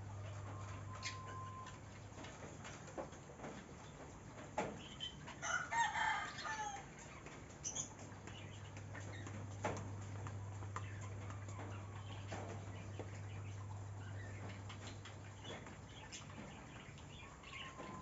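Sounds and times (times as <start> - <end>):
chicken calling: 0.0 - 2.0, 10.8 - 18.0
faint ticks and clicks: 6.8 - 18.0.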